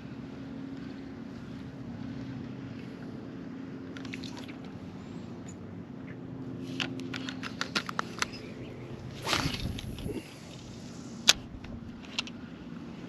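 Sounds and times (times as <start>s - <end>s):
low hum: 0.0s - 13.0s
fishing rod swishing: 6.6s - 11.4s
fishing reel clicking: 9.1s - 12.4s.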